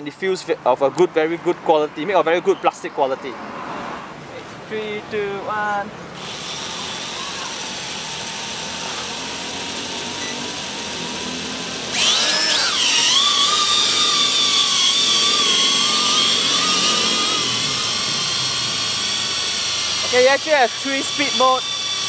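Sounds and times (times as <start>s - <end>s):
drone propellers whining: 6.2s - 22.0s.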